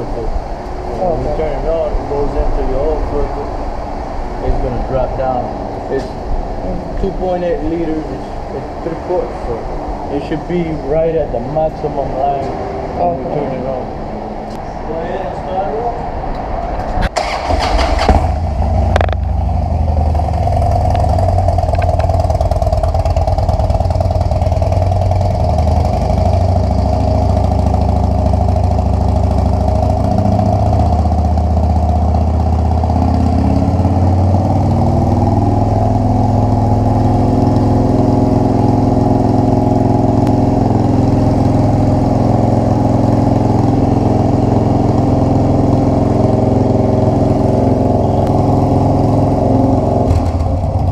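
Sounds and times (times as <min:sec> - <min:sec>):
motorcycle engine starting and idling: 0:17.0 - 0:50.9.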